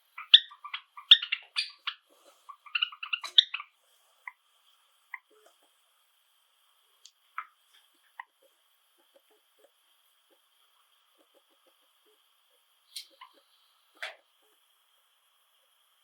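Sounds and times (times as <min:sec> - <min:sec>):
sparrows chirping: 0:00.0 - 0:04.4.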